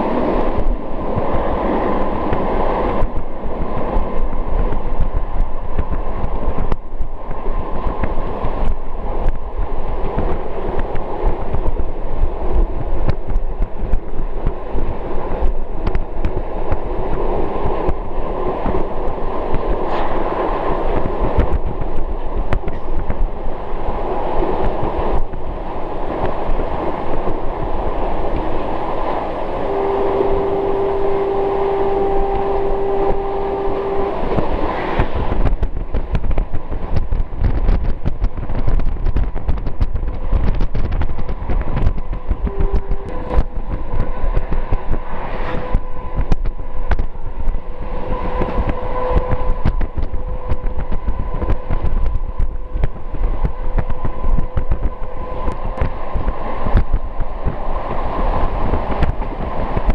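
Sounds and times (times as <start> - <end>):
train wheels rumbling on rails: 0.0 - 59.9
train horn note: 29.5 - 35.6, 41.8 - 56.3.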